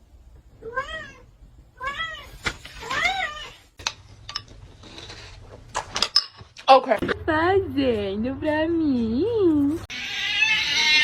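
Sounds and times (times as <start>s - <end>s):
cat meowing: 9.9s - 11.0s.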